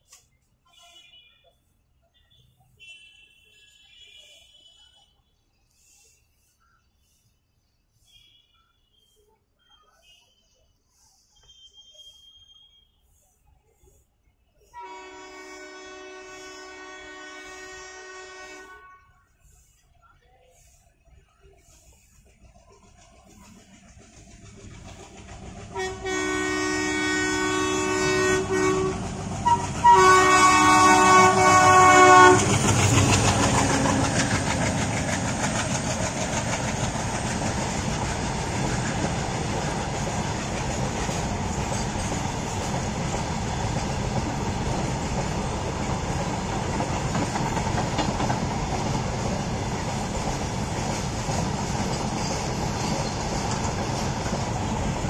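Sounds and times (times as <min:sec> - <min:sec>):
locomotive horn blasts: 0:14.8 - 0:19.2, 0:25.8 - 0:32.6.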